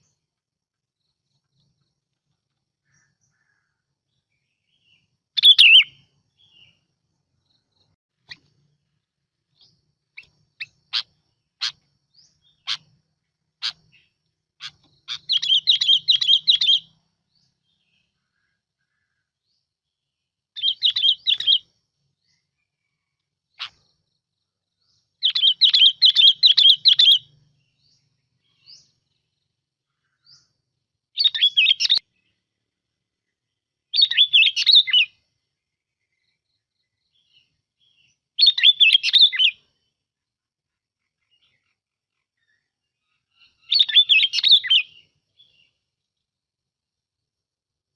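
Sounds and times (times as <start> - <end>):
bird chirping and warbling: 2.8 - 6.9, 9.5 - 19.2, 20.6 - 21.7, 23.5 - 24.0, 24.9 - 29.4, 31.2 - 32.4, 33.9 - 35.2, 37.1 - 39.6, 41.1 - 45.8.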